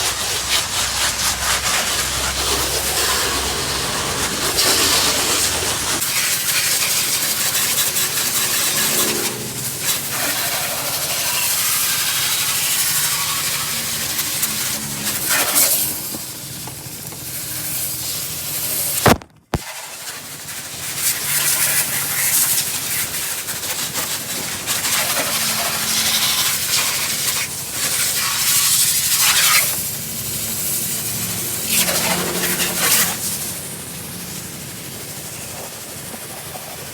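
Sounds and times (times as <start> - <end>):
washer pump humming: 0.0 - 19.5
pressure washer water jet hissing: 0.0 - 36.9.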